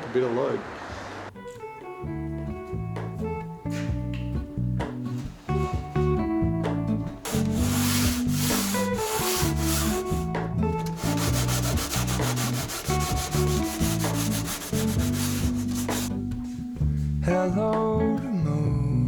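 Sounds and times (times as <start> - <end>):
guitar song: 1.3 - 19.0
sanding rasping hiss: 7.3 - 10.2, 10.9 - 16.1.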